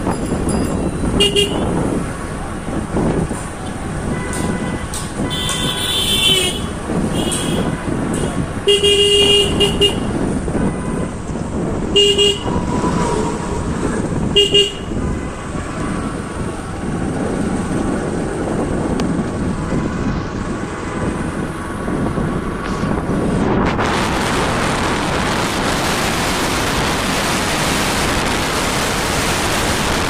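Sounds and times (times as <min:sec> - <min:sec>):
wind noise: 0:00.0 - 0:30.0
vehicle horn honking: 0:01.2 - 0:01.8, 0:04.1 - 0:11.1, 0:11.9 - 0:12.6, 0:14.3 - 0:15.4.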